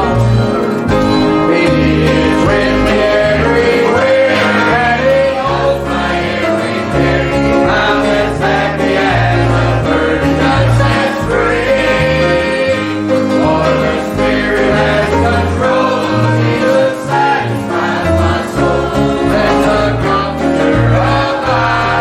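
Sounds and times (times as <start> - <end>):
steady bass line: 0.0 - 16.7
gospel song with string band: 0.0 - 22.0.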